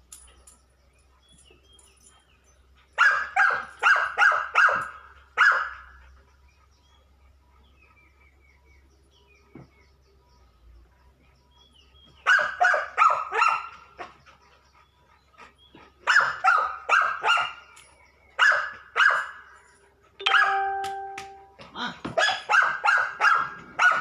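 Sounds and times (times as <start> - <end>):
dog barking: 3.0 - 5.9, 12.2 - 13.7, 16.0 - 17.6, 18.4 - 19.5, 22.2 - 24.0.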